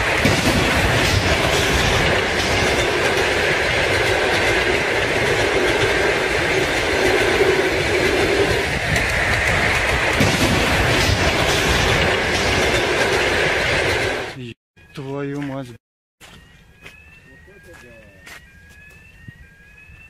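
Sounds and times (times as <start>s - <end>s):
train wheels rumbling on rails: 0.0s - 14.4s.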